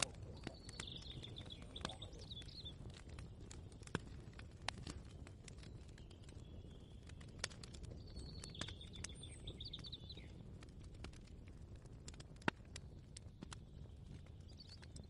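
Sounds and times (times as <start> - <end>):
bird chirps: 0.0 - 3.5, 7.9 - 10.4, 14.4 - 15.0.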